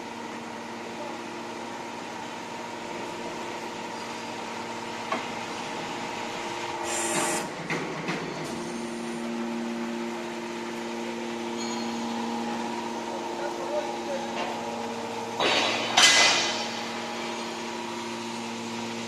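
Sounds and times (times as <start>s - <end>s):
hydraulic hiss: 6.8s - 7.5s
metal clank: 15.4s - 16.8s.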